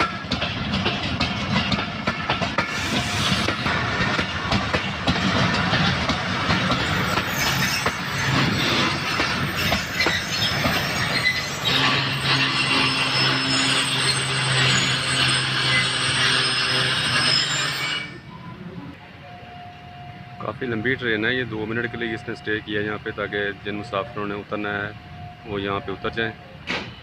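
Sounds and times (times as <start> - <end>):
train wheels clattering on rails: 0.0 - 17.8.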